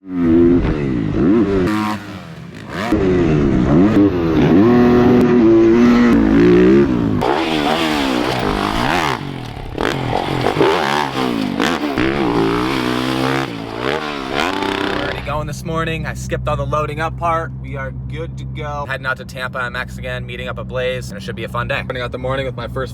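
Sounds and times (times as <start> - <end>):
dirt bike engine revving: 0.0 - 16.2.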